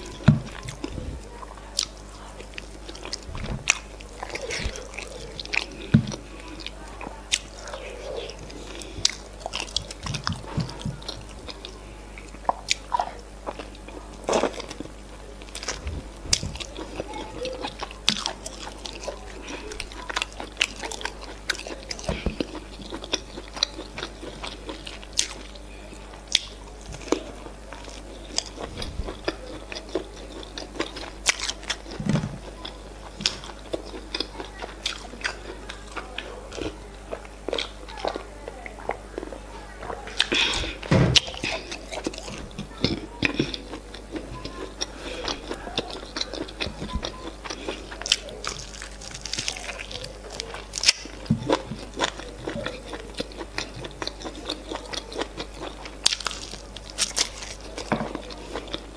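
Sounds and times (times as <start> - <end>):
person chewing and biting: 1.8 - 25.5, 26.2 - 38.3, 40.1 - 58.9.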